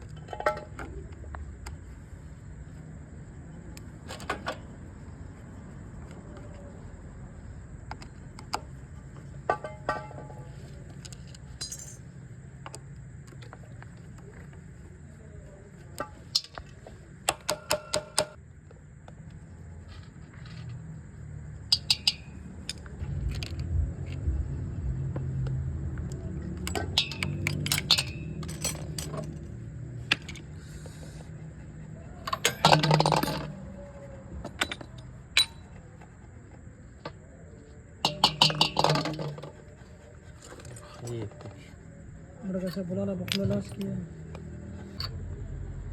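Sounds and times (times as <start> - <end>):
metal clinking and rattling: 9.5 - 12.1, 21.6 - 23.6, 26.5 - 30.5, 32.1 - 35.9, 38.0 - 39.6.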